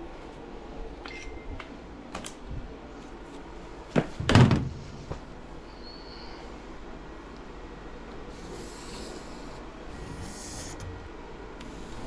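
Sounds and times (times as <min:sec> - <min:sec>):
heavy thud: 0:04.0 - 0:05.2.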